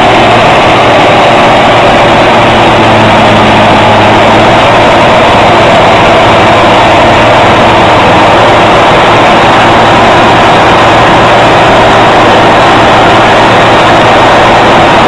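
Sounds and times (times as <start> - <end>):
heavy engine running: 0.0 - 15.0.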